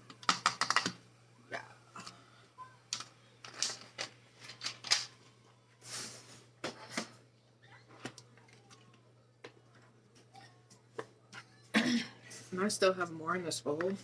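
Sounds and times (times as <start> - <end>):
items clicking on kitchen counter: 0.0 - 1.0, 2.9 - 5.2.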